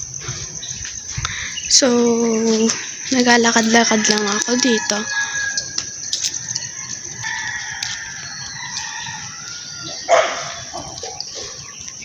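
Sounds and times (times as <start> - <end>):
rooster crowing: 3.7 - 11.3.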